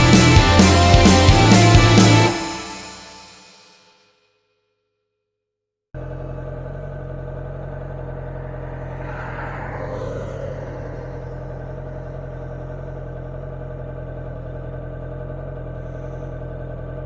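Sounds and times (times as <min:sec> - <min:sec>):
motorcycle engine running: 0:06.0 - 0:08.8, 0:11.4 - 0:17.0
rushing noise: 0:08.2 - 0:12.7.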